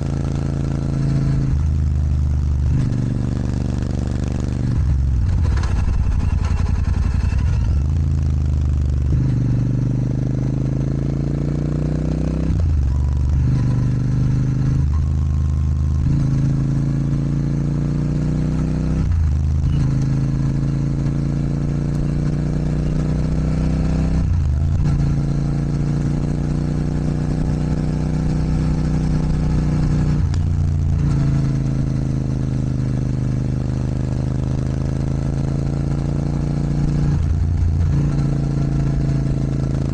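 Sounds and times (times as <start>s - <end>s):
motorcycle engine accelerating: 0.0s - 39.9s
gear changes: 0.4s - 10.0s.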